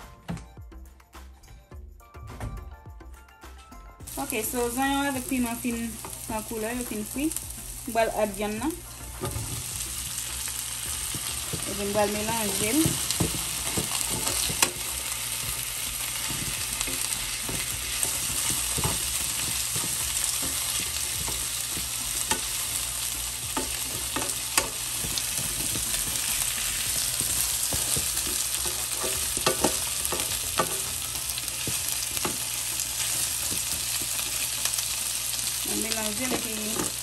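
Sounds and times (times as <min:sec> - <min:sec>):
meat sizzling in oil: 0:04.1 - 0:37.0
tongs clicking on pan: 0:11.0 - 0:35.0.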